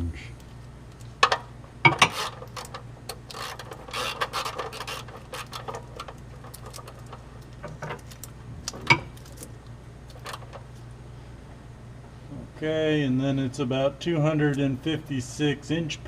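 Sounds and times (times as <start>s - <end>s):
steady low hum: 0.0s - 16.0s
socket wrench clicking and scraping: 1.9s - 5.8s.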